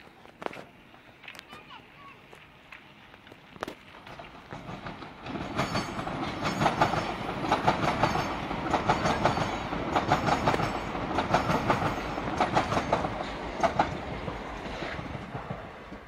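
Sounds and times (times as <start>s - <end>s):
train rumble: 0.0s - 16.0s
train wheels clattering over joints: 3.2s - 16.0s.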